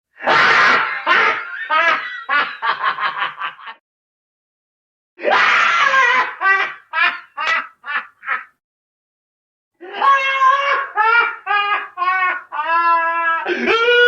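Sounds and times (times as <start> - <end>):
creepy cackling laugh: 0.2 - 3.8, 5.2 - 8.6, 9.9 - 14.0.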